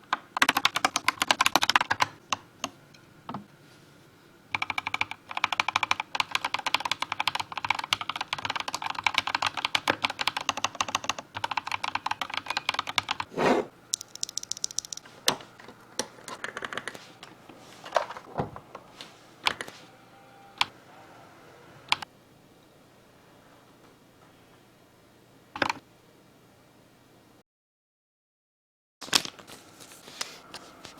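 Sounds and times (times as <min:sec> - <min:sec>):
mechanical keyboard typing: 0:00.1 - 0:02.4, 0:04.5 - 0:13.3, 0:13.9 - 0:15.1, 0:16.0 - 0:17.0.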